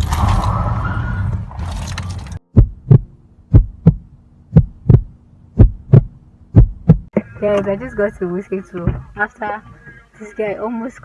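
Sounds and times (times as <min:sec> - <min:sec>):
car interior road noise: 0:00.0 - 0:11.0
heartbeat thumps: 0:02.5 - 0:07.2.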